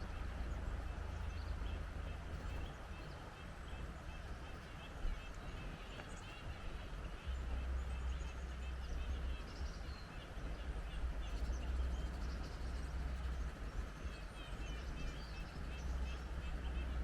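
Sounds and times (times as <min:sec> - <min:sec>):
small birds chirping: 0:00.0 - 0:17.0
wind rumbling on microphone: 0:00.0 - 0:17.0.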